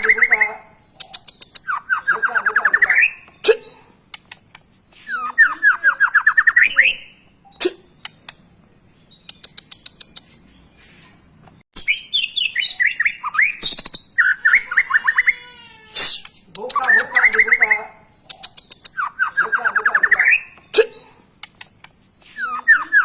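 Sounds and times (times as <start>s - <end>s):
songbird singing: 0.0s - 23.0s.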